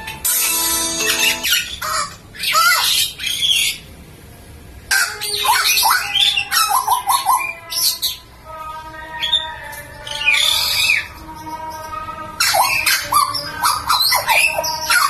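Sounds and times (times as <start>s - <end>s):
bird steady held tone: 0.0s - 3.9s, 5.0s - 15.0s.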